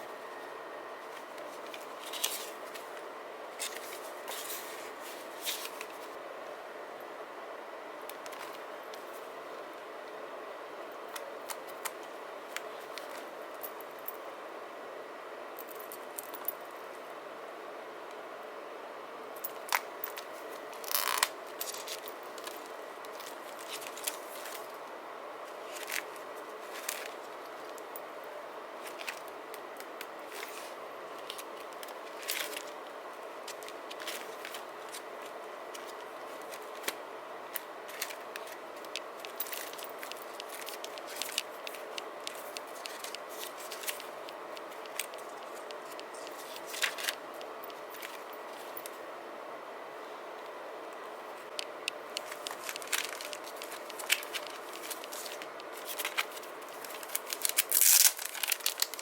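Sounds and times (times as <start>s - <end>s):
steady faint hiss: 0.0s - 59.0s
paper rustling: 1.0s - 3.0s, 3.6s - 6.2s, 37.9s - 48.8s, 52.2s - 59.0s.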